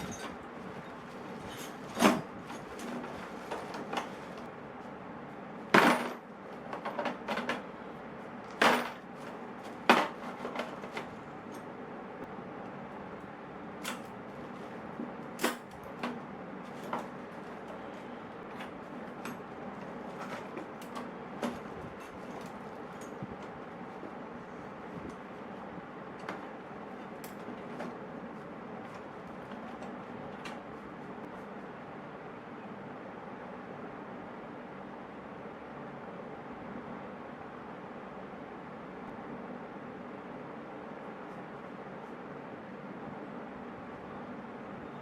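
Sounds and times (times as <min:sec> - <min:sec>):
metal tools clinking on metal: 0:00.0 - 0:03.1.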